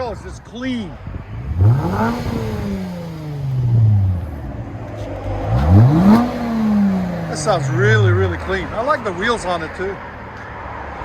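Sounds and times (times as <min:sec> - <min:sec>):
car engine revving: 0:01.3 - 0:09.1.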